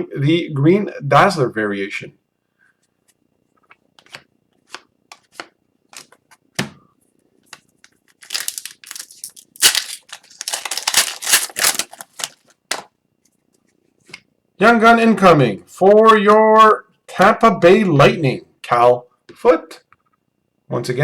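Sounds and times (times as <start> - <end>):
wrapper tearing and crinkling: 8.1 - 12.9
cards clicking: 8.2 - 12.9.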